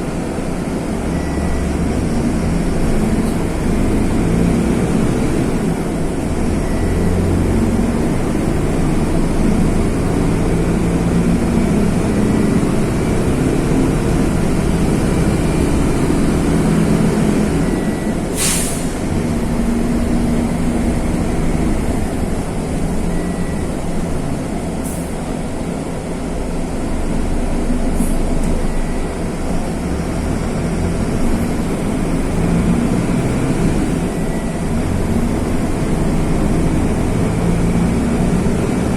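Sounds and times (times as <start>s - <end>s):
bus diesel engine drone: 0.0s - 38.9s
air hiss: 18.3s - 19.1s.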